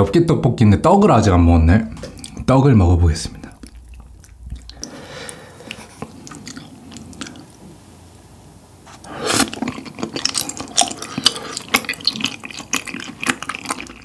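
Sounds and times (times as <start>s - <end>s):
wet chewing sounds: 2.0s - 2.5s, 3.4s - 7.7s, 8.9s - 14.0s.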